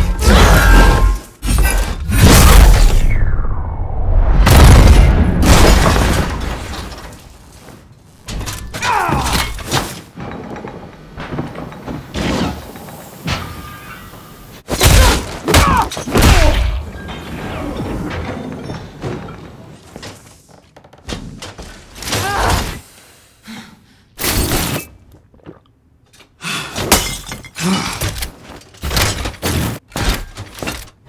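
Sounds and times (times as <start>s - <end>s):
heavy booming impacts: 1.6s - 6.7s
glass shattering: 26.9s - 27.6s.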